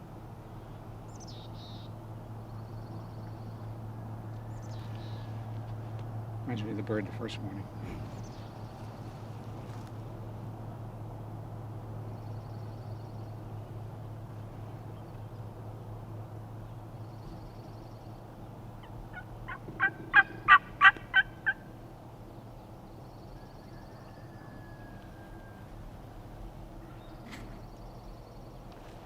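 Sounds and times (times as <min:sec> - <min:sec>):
turkey gobbling: 0:18.8 - 0:21.6.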